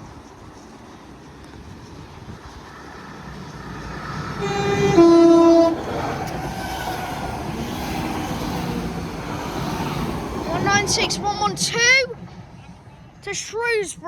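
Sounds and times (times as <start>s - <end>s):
train running noise: 0.0s - 14.0s
train two-tone horn: 4.4s - 5.9s.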